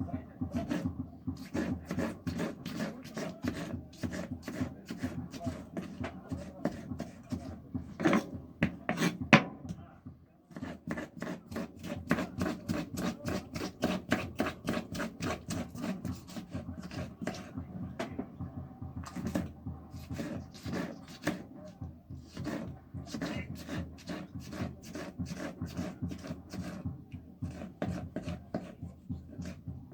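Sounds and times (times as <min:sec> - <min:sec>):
knife chopping on wooden board: 0:00.5 - 0:09.8, 0:10.5 - 0:18.1.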